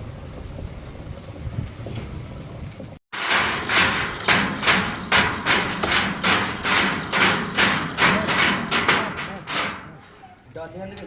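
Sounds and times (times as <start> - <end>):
hammer blows: 3.2 - 10.4.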